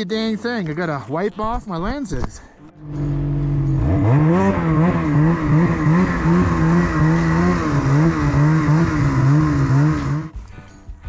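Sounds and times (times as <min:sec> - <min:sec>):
snowmobile engine revving: 0:02.8 - 0:10.3.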